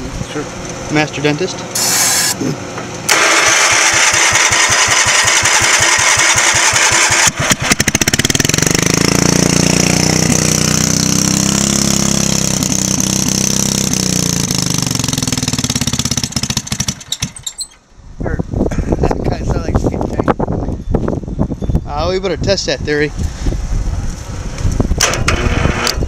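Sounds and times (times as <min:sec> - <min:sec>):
generator engine running: 0:00.0 - 0:10.6
generator engine cranking: 0:03.1 - 0:08.8, 0:16.1 - 0:17.8.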